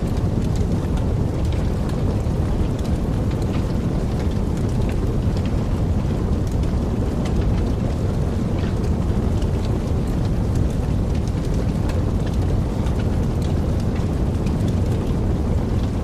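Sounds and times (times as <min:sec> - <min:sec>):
fire crackling and popping: 0:00.0 - 0:16.0
flames rumbling: 0:00.0 - 0:16.0.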